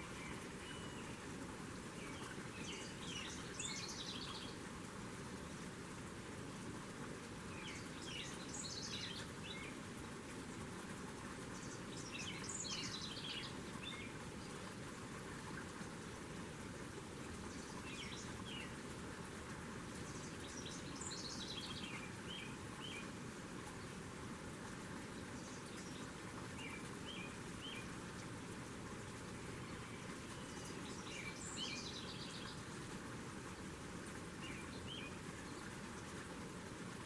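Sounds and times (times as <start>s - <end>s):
songbird singing: 0.0s - 1.2s, 2.0s - 4.6s, 11.9s - 14.2s, 20.1s - 23.1s, 29.5s - 32.7s, 34.4s - 35.7s
outdoor background hiss: 0.0s - 37.0s.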